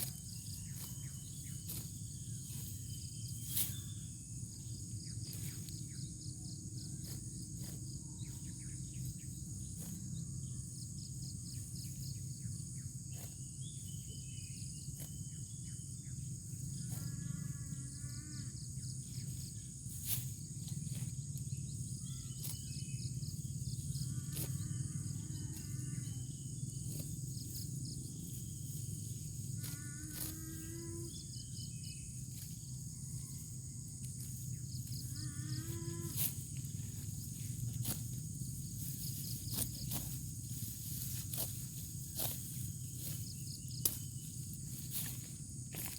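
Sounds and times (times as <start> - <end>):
crickets trilling: 0.0 - 45.9.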